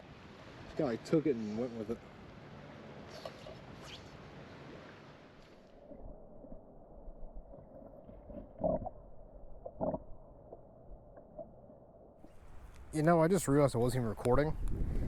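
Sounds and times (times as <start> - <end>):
creek water flowing: 0.0 - 6.6, 12.2 - 15.0.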